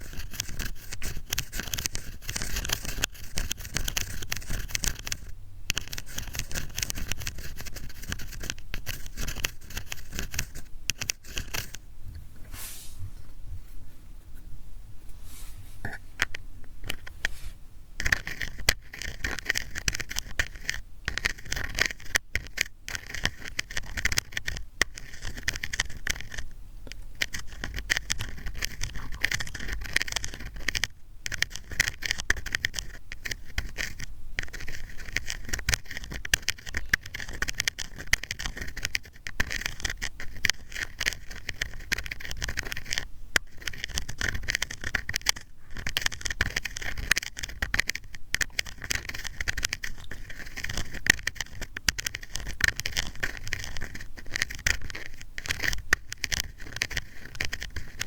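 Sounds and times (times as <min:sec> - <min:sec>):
ear pick scraping: 0:27.2 - 0:58.0.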